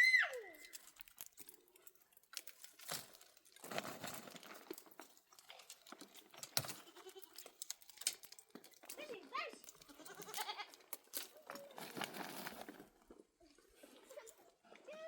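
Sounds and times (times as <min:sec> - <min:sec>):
faint crunching and rustling: 0:00.3 - 0:15.0
goat bleating: 0:06.7 - 0:07.5, 0:09.7 - 0:10.8.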